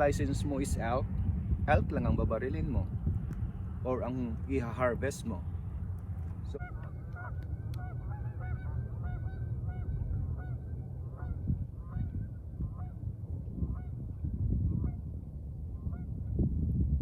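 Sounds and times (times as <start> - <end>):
steady low rumble: 0.0 - 17.0
geese honking: 6.5 - 13.0, 13.7 - 14.0.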